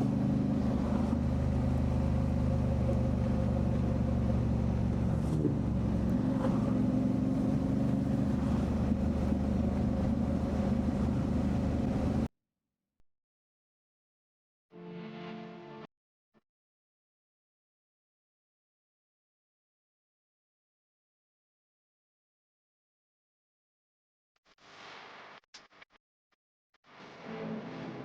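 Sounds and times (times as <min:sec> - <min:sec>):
motorcycle engine cruising: 0:00.0 - 0:12.3
road and wind noise: 0:00.0 - 0:12.3.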